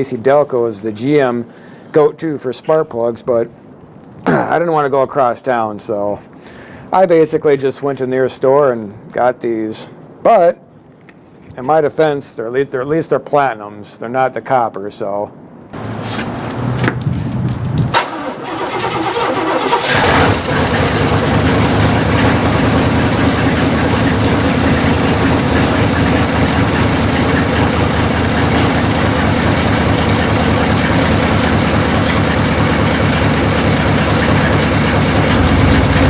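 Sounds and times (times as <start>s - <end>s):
car engine starting and running: 15.8s - 36.0s.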